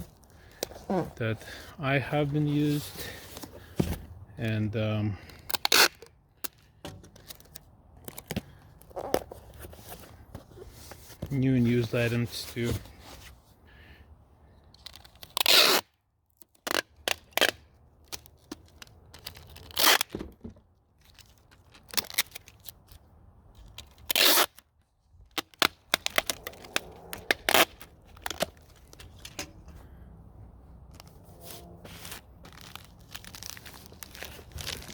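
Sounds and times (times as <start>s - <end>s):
packing material tearing: 5.4s - 6.1s, 19.2s - 20.1s, 21.1s - 23.0s, 23.7s - 24.6s, 25.3s - 29.2s, 30.9s - 34.9s.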